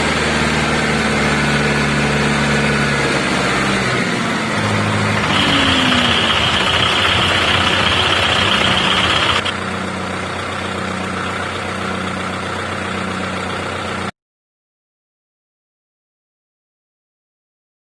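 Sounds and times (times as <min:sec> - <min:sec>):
tractor diesel engine idling: 0:00.0 - 0:14.1
high whine: 0:04.6 - 0:09.5.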